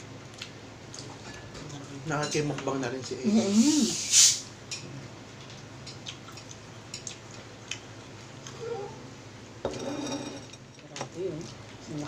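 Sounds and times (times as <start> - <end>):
person chewing food: 5.4 - 8.9.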